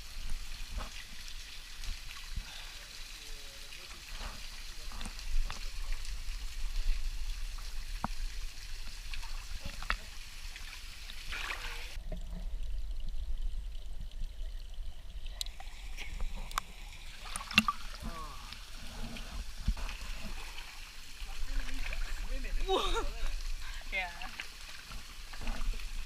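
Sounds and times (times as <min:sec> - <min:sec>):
stream water over rocks: 0:00.0 - 0:26.0.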